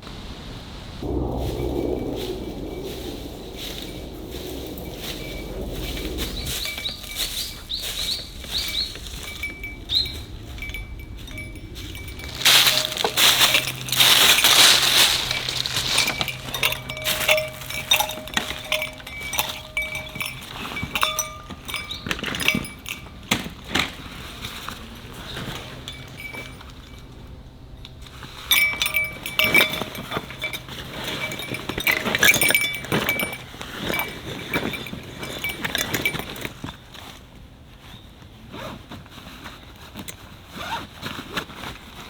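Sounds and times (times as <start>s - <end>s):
glass and camp gear clinking: 3.6s - 37.2s.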